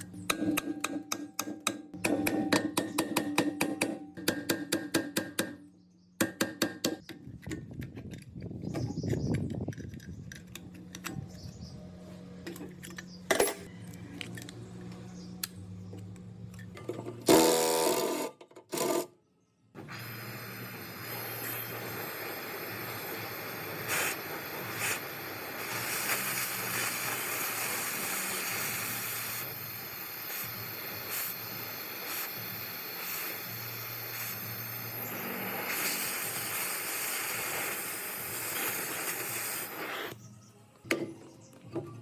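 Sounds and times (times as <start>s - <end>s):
workshop tool hissing: 19.8s - 40.2s.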